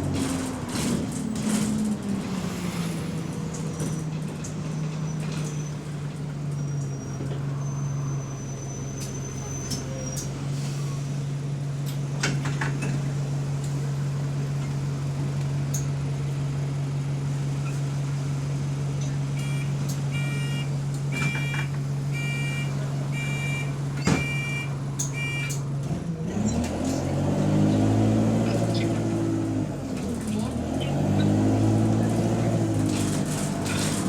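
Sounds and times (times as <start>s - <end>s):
bus engine idling: 0.0s - 27.2s, 28.5s - 34.0s
bus engine revving: 0.0s - 34.0s
door warning beeps: 19.4s - 25.6s
bus doors closing knock: 21.0s - 21.9s, 23.6s - 25.7s.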